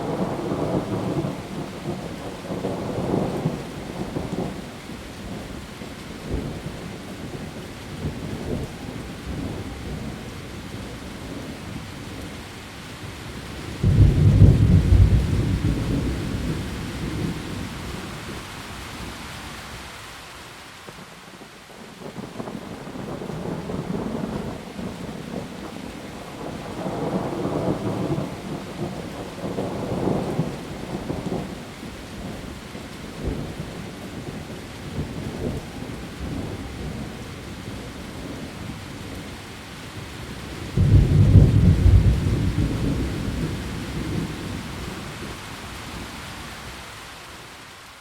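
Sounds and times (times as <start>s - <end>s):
heavy rain on leaves: 0.0s - 48.0s
loud thunderclap: 13.8s - 17.4s, 40.8s - 44.6s
rolling thunder: 13.8s - 18.0s, 40.4s - 45.4s.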